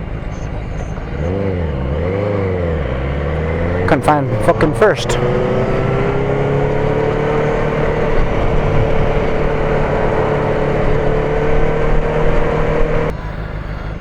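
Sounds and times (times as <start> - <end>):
motorcycle engine accelerating: 0.0 - 14.0
wind rushing: 3.4 - 13.1.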